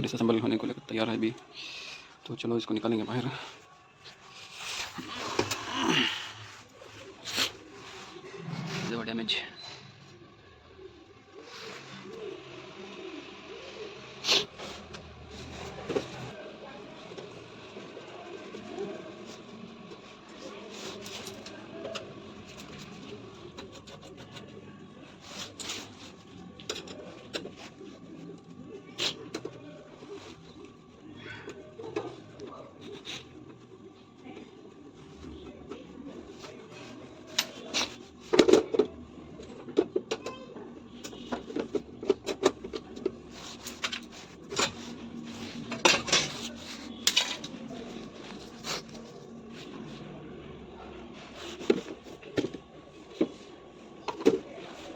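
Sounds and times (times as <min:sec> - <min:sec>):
steady background noise: 0:00.0 - 0:54.9
clicks and scrapes of tools: 0:45.7 - 0:47.6.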